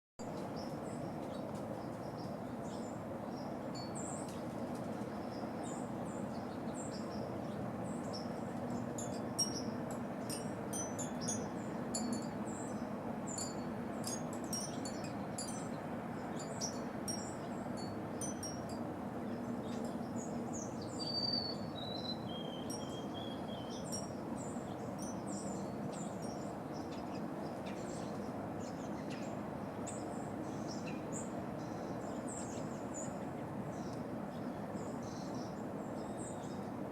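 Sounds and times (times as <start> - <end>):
outdoor background hum: 0.2 - 36.9
small birds chirping: 19.2 - 36.8.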